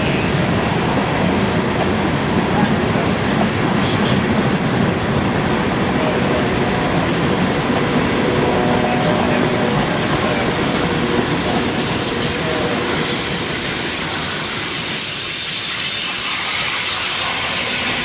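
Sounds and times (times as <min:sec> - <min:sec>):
freight cars rumbling on rails: 0:00.0 - 0:18.0
wheel squeal: 0:02.6 - 0:04.1.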